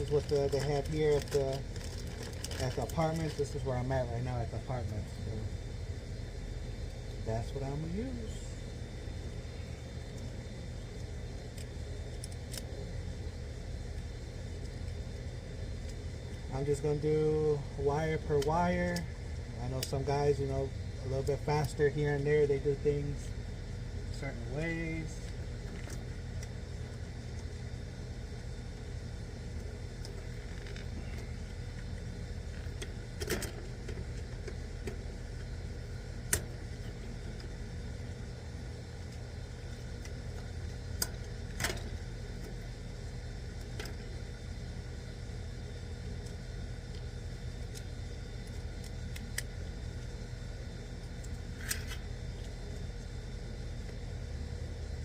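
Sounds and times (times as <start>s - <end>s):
faint constant hum: 0.0s - 55.0s
steady low rumble: 0.0s - 55.0s
sharp clicks and taps on wiring: 36.3s - 36.5s.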